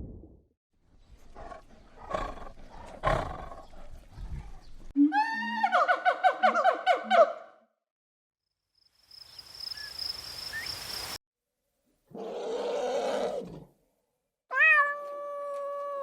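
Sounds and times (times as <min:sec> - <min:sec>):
large animal roaring and growling: 0:12.1 - 0:13.7.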